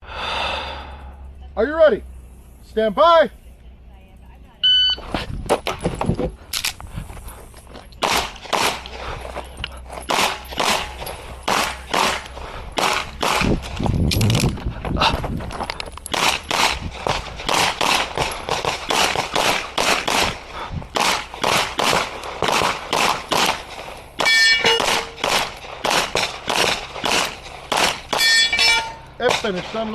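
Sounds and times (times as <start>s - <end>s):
pistol shots: 8.0s - 9.0s, 10.1s - 13.7s, 16.1s - 29.9s.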